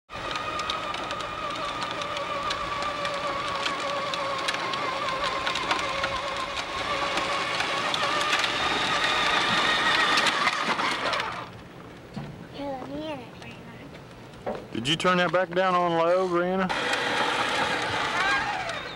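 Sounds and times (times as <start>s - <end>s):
small motor whining: 0.1s - 11.6s, 15.8s - 18.9s
scattered clicks: 0.2s - 11.4s.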